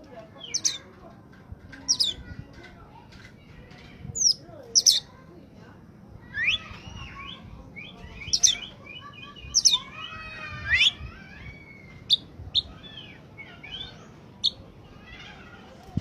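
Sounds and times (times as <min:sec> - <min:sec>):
songbird singing whistled phrases: 0:00.4 - 0:00.8, 0:01.9 - 0:02.2, 0:04.2 - 0:05.1, 0:06.3 - 0:09.9, 0:10.6 - 0:11.0, 0:11.8 - 0:14.6.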